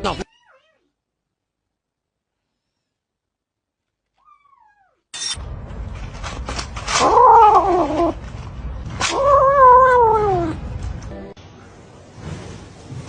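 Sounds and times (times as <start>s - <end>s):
cat yowling: 0.2s - 0.9s, 4.2s - 5.1s, 7.0s - 8.2s, 9.1s - 10.6s.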